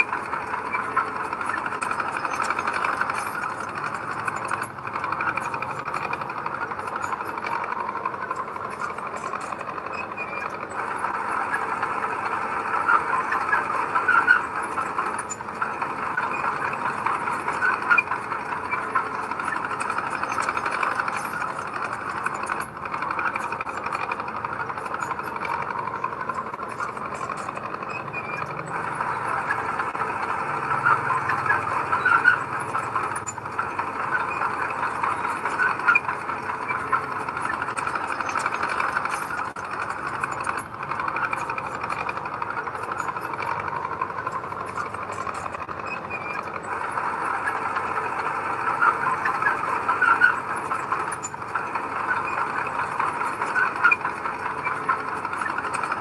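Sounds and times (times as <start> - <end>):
bulldozer diesel engine: 0.0 - 56.0
steel tracks squealing and clattering: 0.0 - 56.0.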